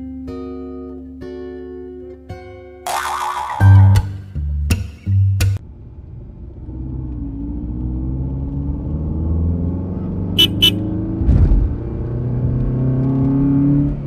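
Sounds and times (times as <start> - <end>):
vehicle engine running: 10.0 - 11.0
low thump: 11.2 - 11.8.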